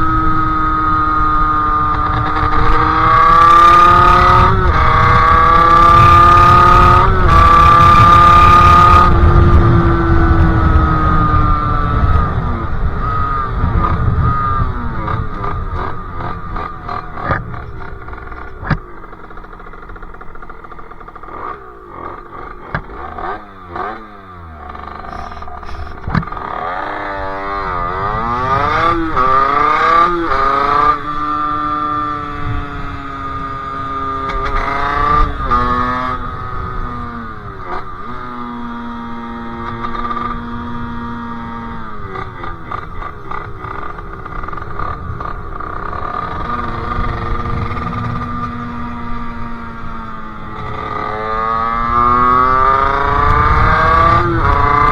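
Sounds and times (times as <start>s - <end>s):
two-stroke engine revving: 0.0s - 54.9s
sharp clicks: 24.8s - 26.4s.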